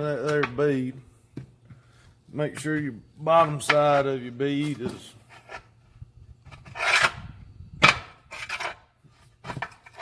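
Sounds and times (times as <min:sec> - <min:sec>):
tire iron scraping on rim: 0:06.4 - 0:10.0.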